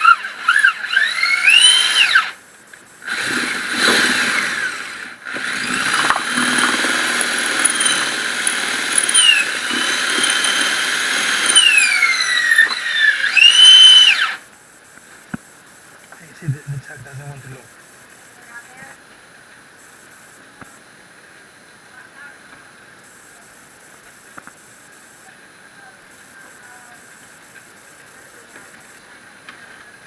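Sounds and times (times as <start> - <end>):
electric drill cutting wood: 0.0 - 2.4, 3.0 - 14.4.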